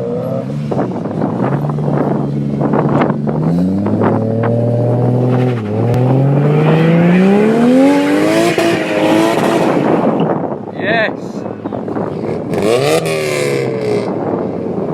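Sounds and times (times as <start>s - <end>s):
car engine accelerating: 0.0s - 10.6s.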